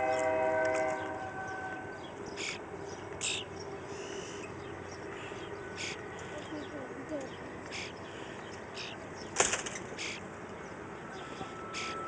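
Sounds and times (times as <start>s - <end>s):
distant train horn: 0.0s - 2.6s, 4.9s - 7.0s, 11.0s - 12.0s.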